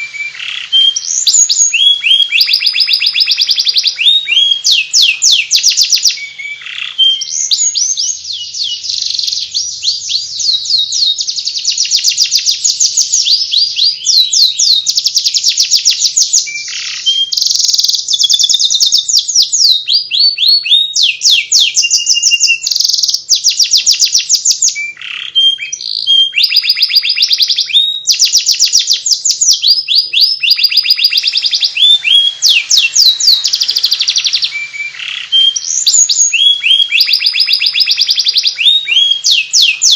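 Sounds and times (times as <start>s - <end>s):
canary twittering song: 0.0s - 39.9s.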